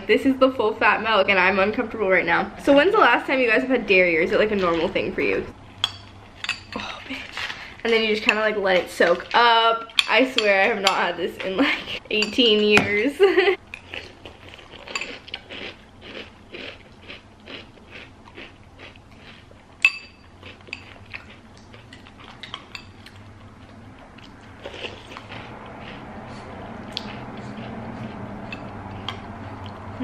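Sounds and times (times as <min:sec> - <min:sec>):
cereal crunching while chewing: 0:13.8 - 0:19.6, 0:20.2 - 0:23.2, 0:24.2 - 0:29.8
spoon clinking on bowl: 0:19.8 - 0:20.9.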